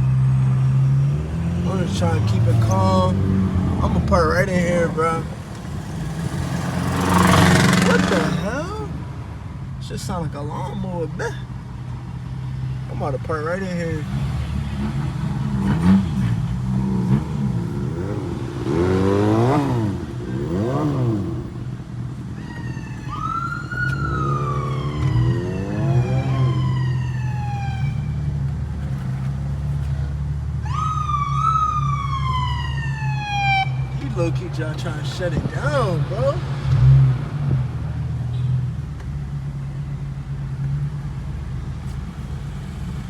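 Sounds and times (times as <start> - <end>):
car engines revving: 0.0 - 43.0
car engine idling: 1.4 - 31.2, 32.0 - 36.4
police siren wailing: 22.3 - 28.3, 30.6 - 33.9.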